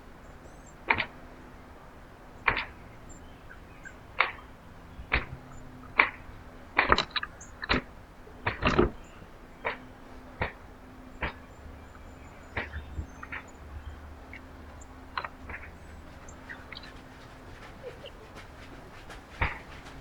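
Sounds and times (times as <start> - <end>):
sharp taps and knocks: 15.1 - 20.0.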